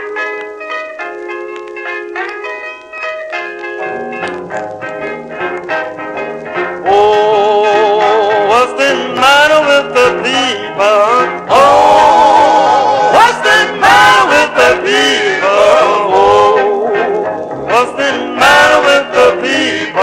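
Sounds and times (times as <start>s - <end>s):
men singing in harmony: 6.8s - 20.0s.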